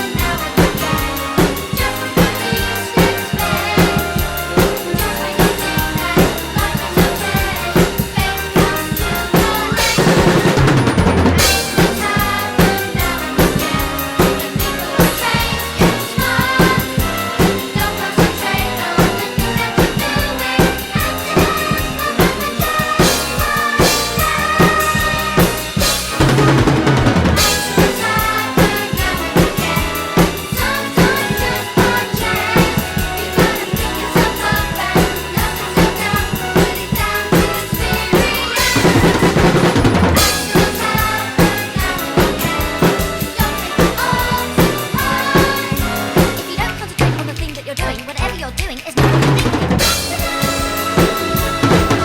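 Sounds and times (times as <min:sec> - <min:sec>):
drum kit playing: 0:00.0 - 0:52.0
recorded song: 0:00.0 - 0:52.0
cymbal crashes: 0:11.3 - 0:13.5.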